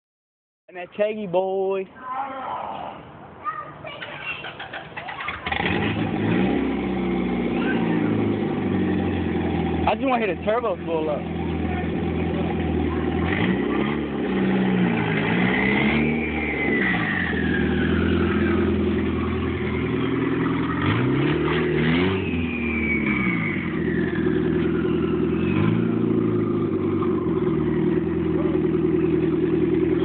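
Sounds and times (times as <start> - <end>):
car engine revving: 5.4 - 30.0
turbo whistle: 15.8 - 18.6, 21.9 - 26.0.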